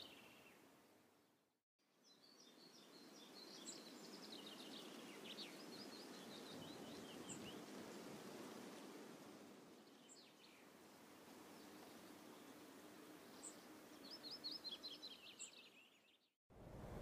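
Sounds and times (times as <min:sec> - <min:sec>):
steady low hiss: 0:02.4 - 0:15.4, 0:16.6 - 0:17.0.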